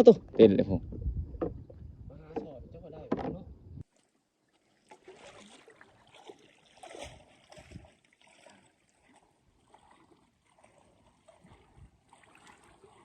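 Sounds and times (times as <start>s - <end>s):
soft knocks: 0.9s - 3.5s
water splashing from paddling: 1.4s - 13.0s.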